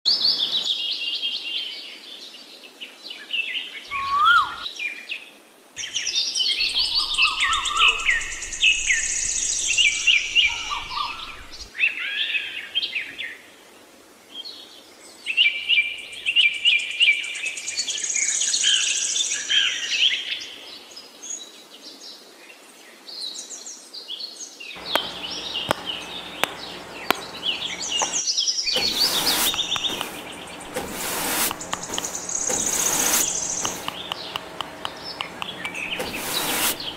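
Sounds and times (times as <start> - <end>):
birds singing and chirping: 3.8 - 4.8, 5.8 - 11.7, 24.8 - 36.9
sharp clicks: 24.8 - 36.2.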